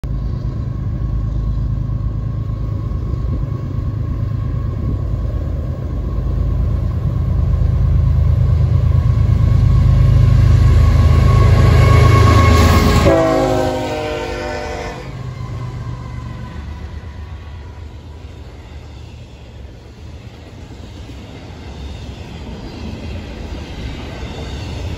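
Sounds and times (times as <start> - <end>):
diesel locomotive rumble: 0.0 - 24.9
train air horn: 10.8 - 15.4.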